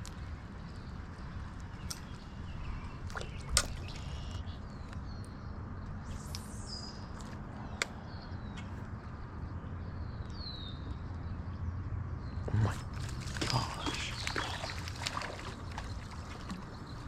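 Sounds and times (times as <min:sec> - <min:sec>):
low outdoor rumble: 0:00.0 - 0:17.0
birds chirping and whistling: 0:01.8 - 0:08.7, 0:12.3 - 0:17.0.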